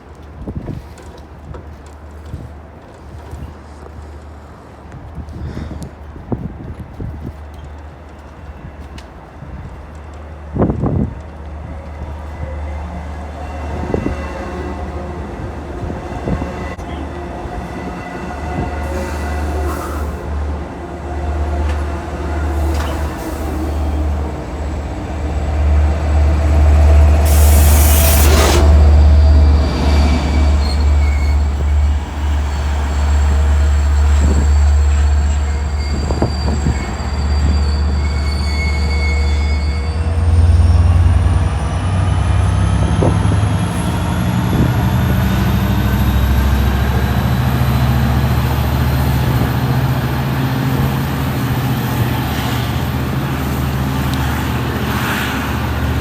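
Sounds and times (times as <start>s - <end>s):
train rumbling: 0.0s - 56.0s
short hiss: 27.2s - 28.8s
wheel squeal: 27.3s - 41.3s.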